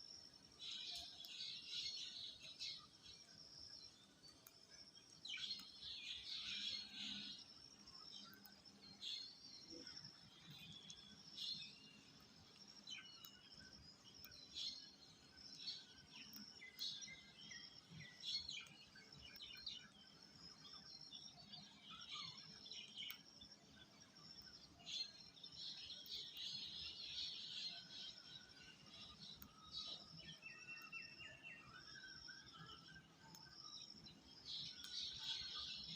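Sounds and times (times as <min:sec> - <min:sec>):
birds chirping: 0:00.6 - 0:20.2.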